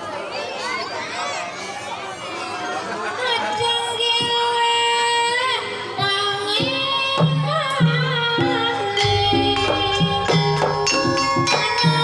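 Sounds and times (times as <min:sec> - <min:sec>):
woman singing long wavering notes: 0:06.8 - 0:12.0
drum strokes: 0:07.2 - 0:12.0
low gamelan tones: 0:07.8 - 0:12.0.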